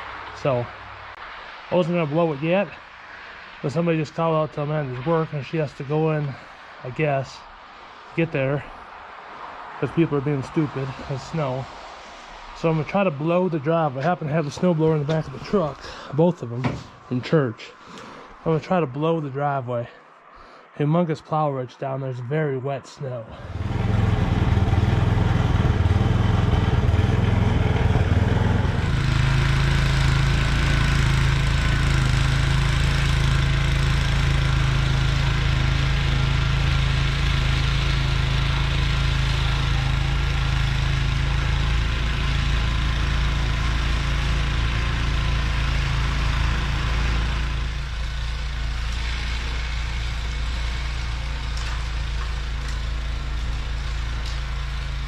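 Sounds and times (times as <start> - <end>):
snowblower engine running: 9.9 - 17.1, 23.3 - 55.0.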